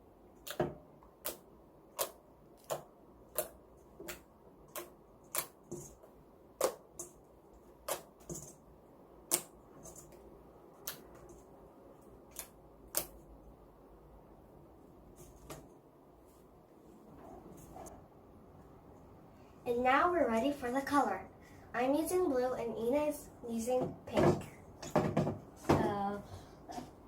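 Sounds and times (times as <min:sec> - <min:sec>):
slime stirred in a bowl: 0:00.3 - 0:13.3.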